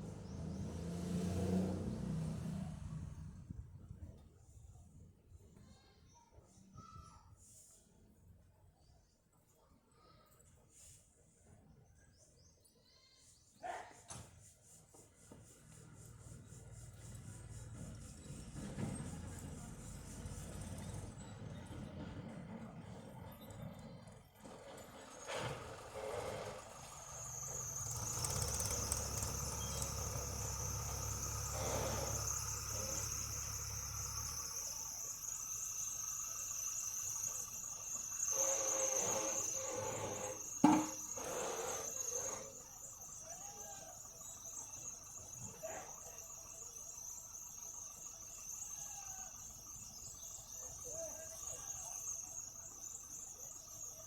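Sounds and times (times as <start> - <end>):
insects trilling: 26.8 - 54.0.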